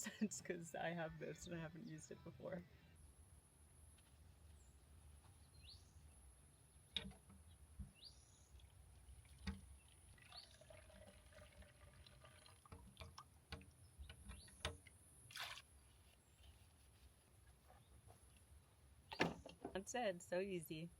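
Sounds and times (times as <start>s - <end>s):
water pouring and dripping: 8.5s - 16.0s.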